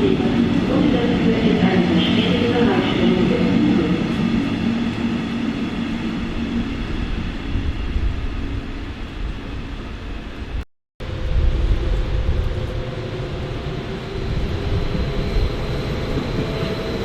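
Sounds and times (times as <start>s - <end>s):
electric train rumble: 0.0s - 17.0s.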